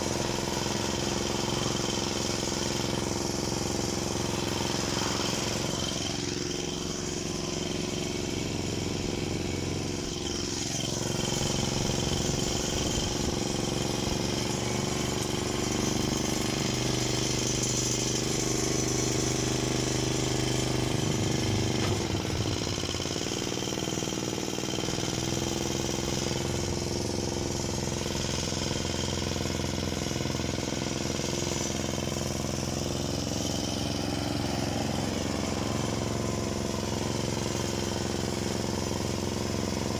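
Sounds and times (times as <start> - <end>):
car engine running: 16.2 - 29.4.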